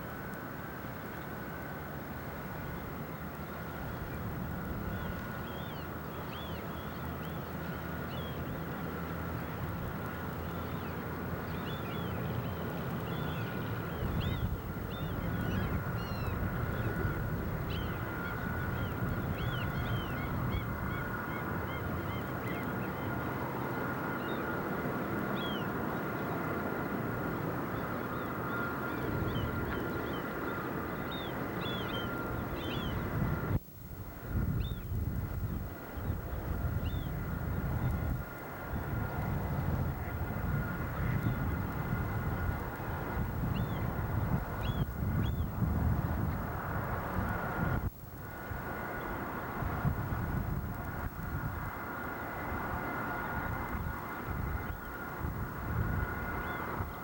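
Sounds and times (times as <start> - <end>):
thin steady hum: 0.0 - 57.0
flock of birds calling: 27.8 - 33.1.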